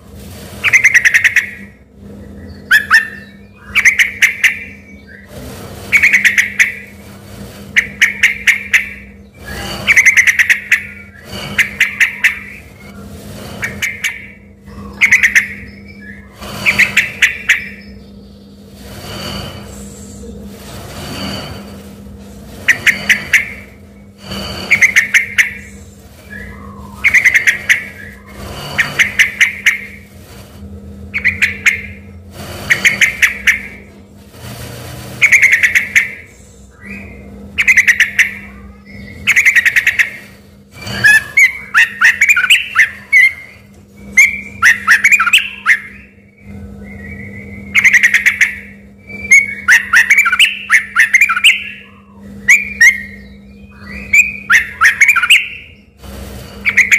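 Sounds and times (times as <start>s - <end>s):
steady low hum: 0.0s - 56.9s
bird singing bright notes: 2.3s - 5.3s, 5.9s - 6.9s, 13.6s - 18.6s, 22.7s - 30.0s, 31.1s - 32.0s, 40.9s - 56.0s, 56.6s - 56.9s.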